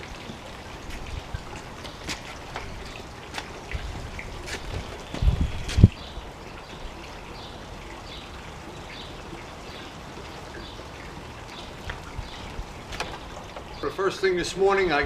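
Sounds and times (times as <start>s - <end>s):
outdoor background hiss: 0.0s - 15.0s
low bumps: 0.8s - 6.2s.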